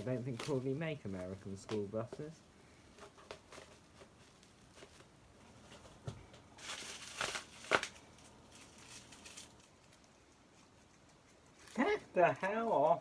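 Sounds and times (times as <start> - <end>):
packaging rustling and crinkling: 0.0 - 10.1.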